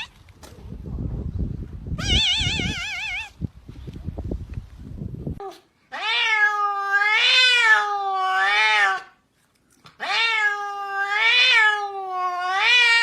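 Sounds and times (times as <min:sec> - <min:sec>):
cat meowing: 0:02.0 - 0:03.4, 0:05.4 - 0:09.2, 0:10.0 - 0:13.0.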